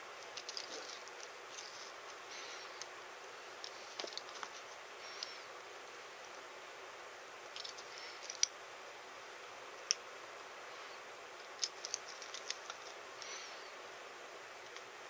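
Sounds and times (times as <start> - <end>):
steady hiss: 0.0 - 15.0
light clicks of small parts: 0.2 - 2.2, 7.5 - 8.6, 9.8 - 10.0, 11.4 - 13.4.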